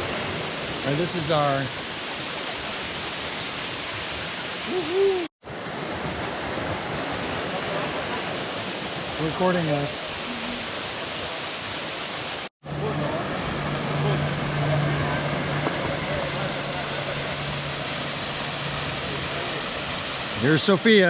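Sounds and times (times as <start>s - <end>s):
waterfall rushing: 0.0s - 21.0s
low hum: 12.6s - 19.9s.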